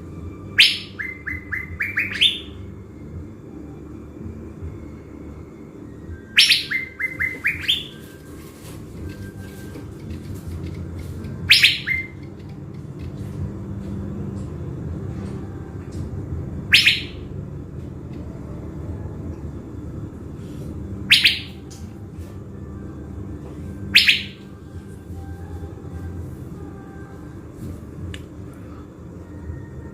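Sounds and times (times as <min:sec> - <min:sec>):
low rumble: 0:00.0 - 0:29.9
bird short upward calls: 0:00.6 - 0:02.6, 0:06.4 - 0:08.0, 0:11.5 - 0:12.2, 0:16.7 - 0:17.2, 0:21.1 - 0:21.6, 0:23.9 - 0:24.4.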